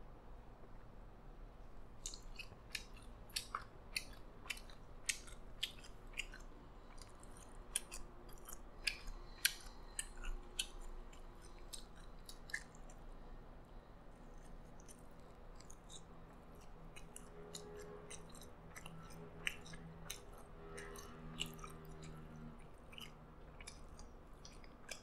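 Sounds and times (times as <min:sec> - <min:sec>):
wet chewing mouth clicks: 0:02.0 - 0:13.1, 0:14.2 - 0:25.0.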